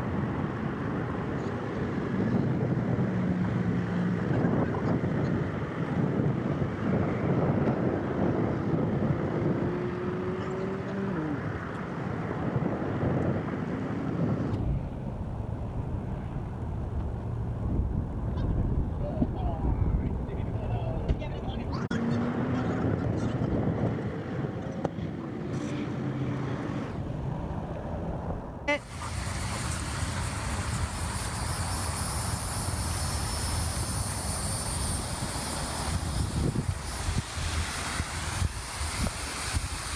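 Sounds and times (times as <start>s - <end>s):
low outdoor rumble: 0.0s - 38.6s
wind buffeting microphone: 0.0s - 39.9s
higher hiss: 28.7s - 39.9s.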